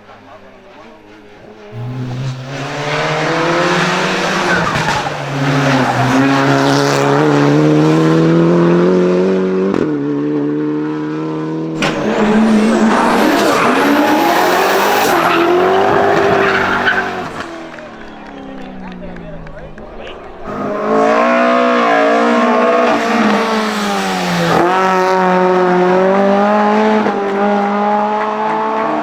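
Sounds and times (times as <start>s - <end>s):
race car engine accelerating: 0.0s - 29.0s
tyres squealing: 1.7s - 6.9s, 11.8s - 25.3s
sharp crack: 11.8s - 21.4s.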